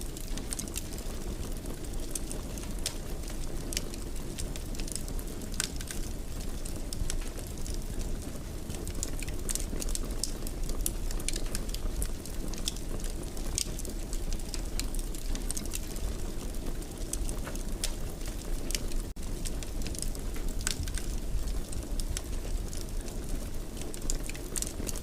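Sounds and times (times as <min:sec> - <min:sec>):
wood fire crackling: 0:00.0 - 0:25.0.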